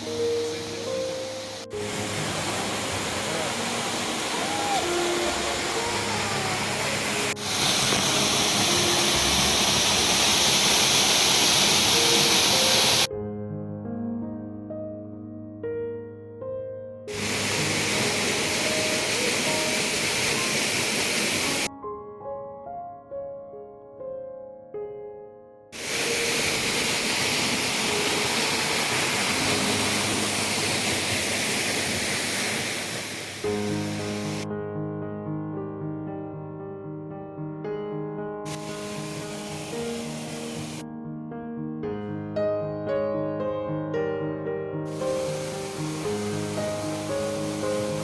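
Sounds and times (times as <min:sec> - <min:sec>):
waterfall rushing: 0:00.0 - 0:13.1, 0:17.1 - 0:21.7, 0:25.8 - 0:34.4, 0:38.5 - 0:40.8, 0:44.9 - 0:48.0.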